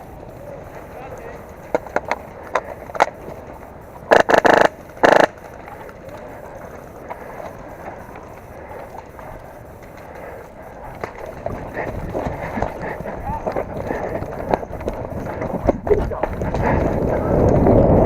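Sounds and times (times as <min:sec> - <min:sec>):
rustling of movement: 0:00.0 - 0:18.0
airsoft gun rapid shots: 0:04.1 - 0:05.4.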